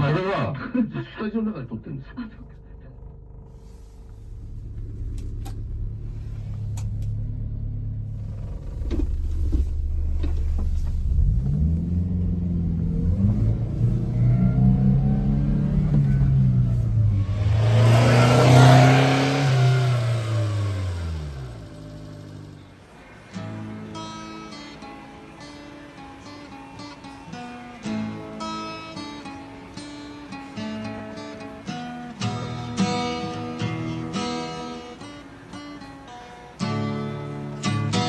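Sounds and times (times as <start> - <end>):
small truck engine revving: 2.4 - 38.0.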